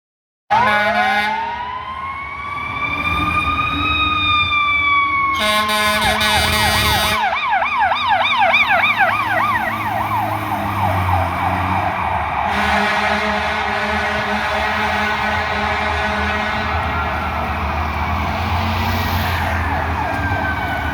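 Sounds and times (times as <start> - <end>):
horn blasts: 0.5 - 1.6, 5.3 - 7.4, 11.0 - 17.7
fire truck engine rumble: 0.5 - 20.9
fire truck siren wailing: 0.5 - 20.9.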